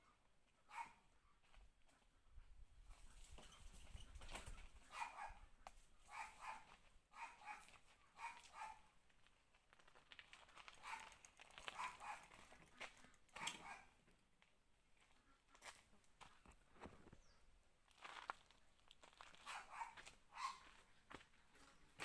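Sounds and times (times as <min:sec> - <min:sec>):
dog barking faintly: 0:00.7 - 0:01.4, 0:04.9 - 0:05.5, 0:06.1 - 0:08.9, 0:19.4 - 0:20.8.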